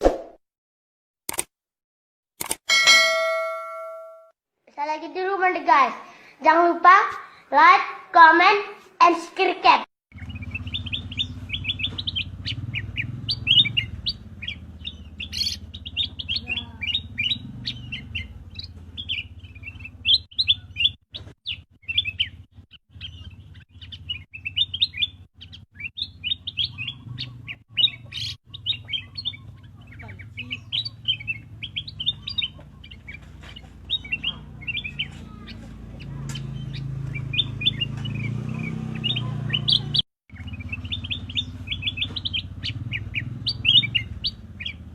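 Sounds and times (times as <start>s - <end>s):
bird chirping: 10.1s - 44.9s.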